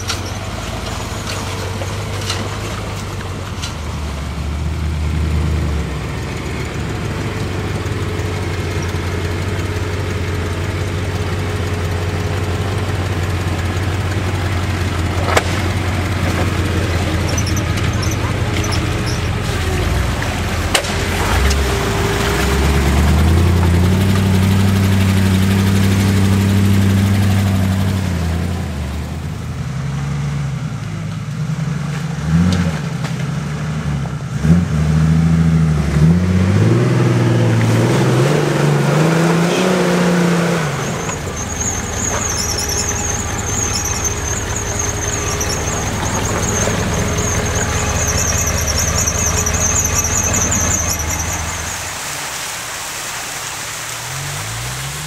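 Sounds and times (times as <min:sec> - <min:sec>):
off-road engine revving: 0:00.0 - 0:52.6, 0:53.9 - 0:55.0
high wavering squeal: 0:15.7 - 0:24.7, 0:38.9 - 0:52.0.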